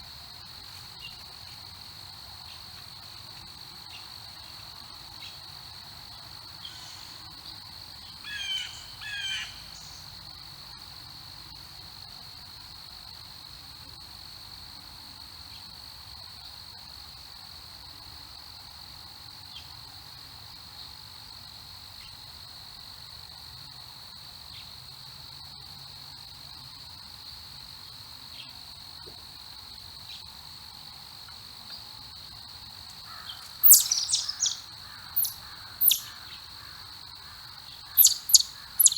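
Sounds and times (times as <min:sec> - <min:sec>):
insects droning: 0:00.0 - 0:38.9
bird chirping: 0:33.4 - 0:36.2, 0:37.9 - 0:38.9.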